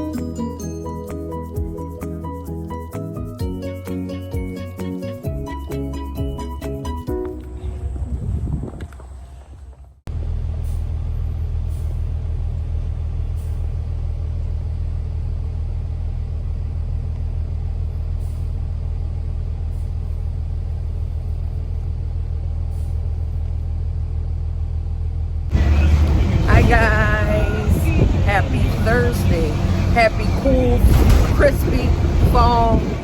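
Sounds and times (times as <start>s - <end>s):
car in motion rumbling: 7.1s - 33.0s.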